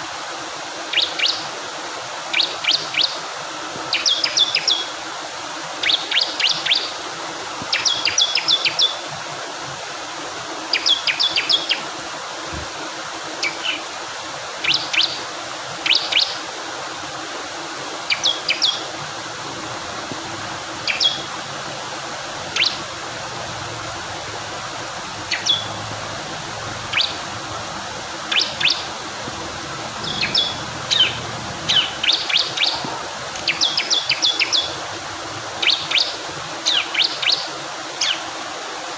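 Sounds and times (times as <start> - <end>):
flowing water: 0.0 - 38.9
bird chirping rapidly: 20.8 - 21.3, 22.4 - 23.0, 25.2 - 25.8, 26.6 - 32.8, 33.4 - 34.9.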